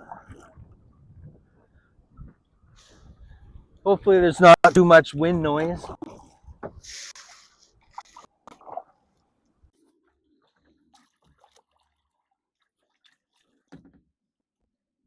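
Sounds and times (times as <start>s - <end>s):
water splashing and dripping: 5.8s - 14.0s.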